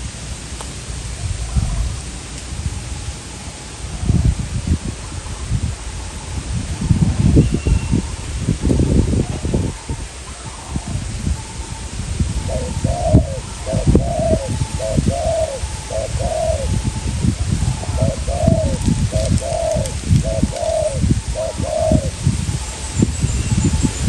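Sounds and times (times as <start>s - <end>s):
wind buffeting microphone: 0.0s - 24.0s
dove cooing: 9.1s - 24.0s.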